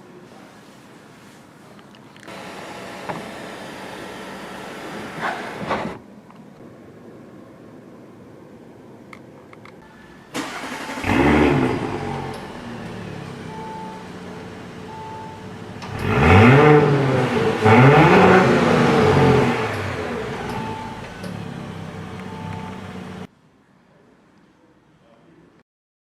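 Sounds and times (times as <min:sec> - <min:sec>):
car engine starting and revving: 0:10.3 - 0:23.3.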